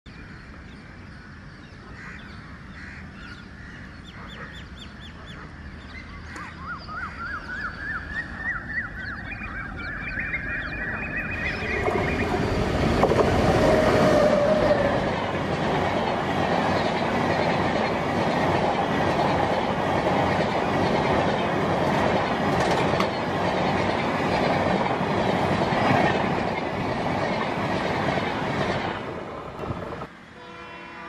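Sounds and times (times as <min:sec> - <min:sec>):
bird chirping: 0:03.2 - 0:12.8
train rumble and clatter: 0:09.8 - 0:30.2.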